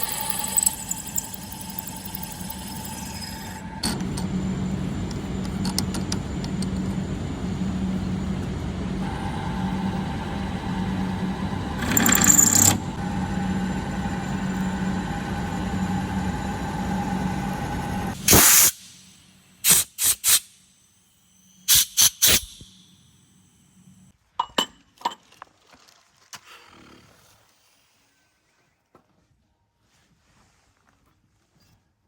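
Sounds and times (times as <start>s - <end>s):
machinery humming: 0.0s - 18.4s.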